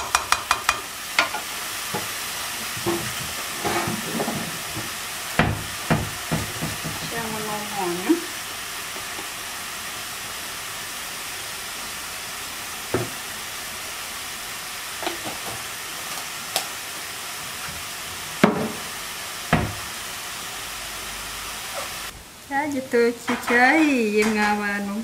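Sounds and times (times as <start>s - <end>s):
utensil knocking against pan: 0.0s - 1.4s, 5.4s - 7.1s
food sizzling in a pan: 0.0s - 25.0s.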